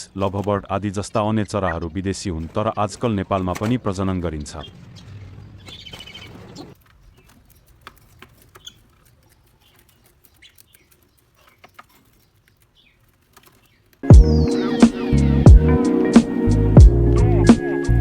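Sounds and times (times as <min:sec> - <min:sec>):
small clicks of birds moving: 0:01.8 - 0:14.1
soft bird chirps: 0:04.3 - 0:18.0
loud music: 0:14.0 - 0:18.0.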